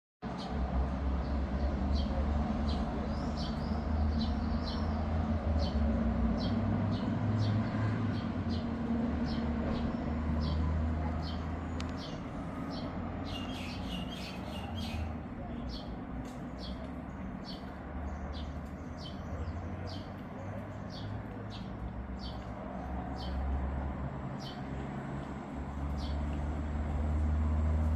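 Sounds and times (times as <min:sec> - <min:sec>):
small bird chirping: 0:11.2 - 0:15.9.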